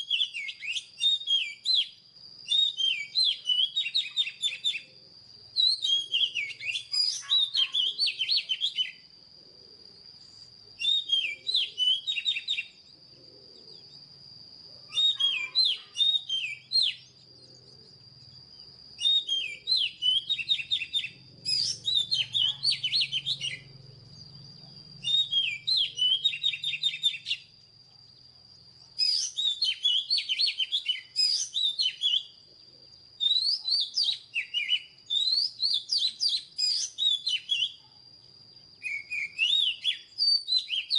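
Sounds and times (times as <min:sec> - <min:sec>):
magpie-robin whistled song: 0:00.0 - 0:09.1, 0:10.2 - 0:12.9, 0:14.8 - 0:28.2, 0:28.8 - 0:32.5, 0:33.1 - 0:37.9, 0:38.6 - 0:40.9.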